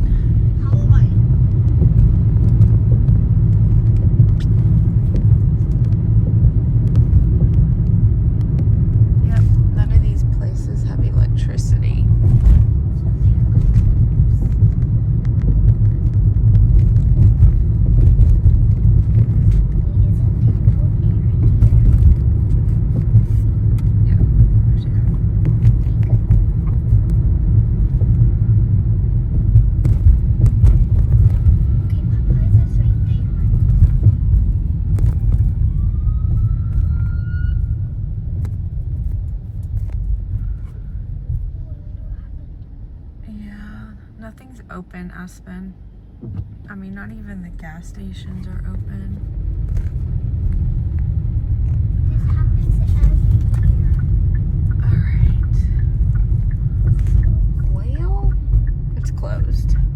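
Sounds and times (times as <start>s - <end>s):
car road noise rumble: 0.0s - 59.9s.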